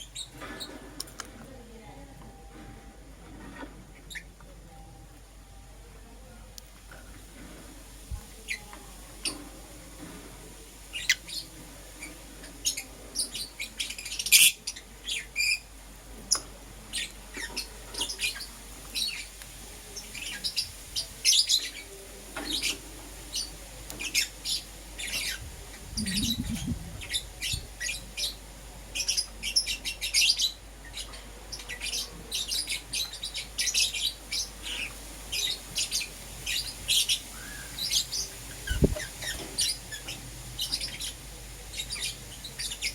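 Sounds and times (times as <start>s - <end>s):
lovebirds chirping: 16.3s - 42.9s.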